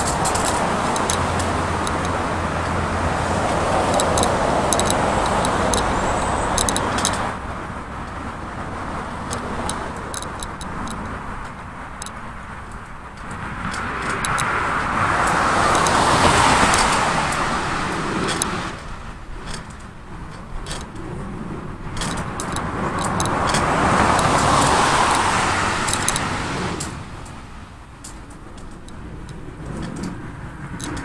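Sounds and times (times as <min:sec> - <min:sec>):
cars passing: 0:00.0 - 0:31.0.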